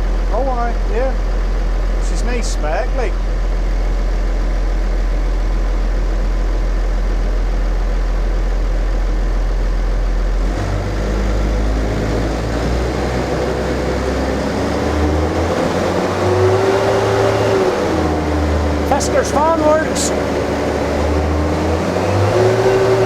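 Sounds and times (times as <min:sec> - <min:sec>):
engine cooling fan: 0:00.0 - 0:23.0
tractor diesel engine revving: 0:09.4 - 0:23.0.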